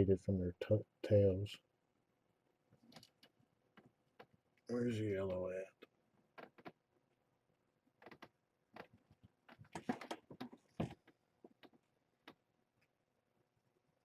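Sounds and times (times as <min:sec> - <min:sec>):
faint rustles and light taps: 0:07.9 - 0:12.9.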